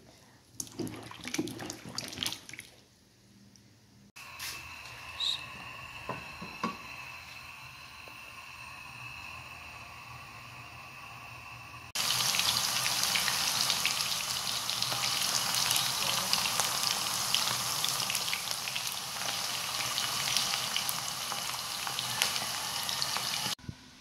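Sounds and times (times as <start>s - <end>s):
potato slices frying in oil: 12.0s - 23.6s.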